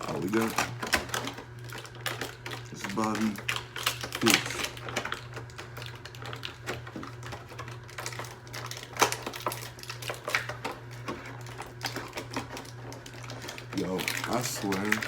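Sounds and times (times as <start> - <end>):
packaging snap: 0.0 - 10.8
packaging clicks and crinkles: 0.0 - 15.0.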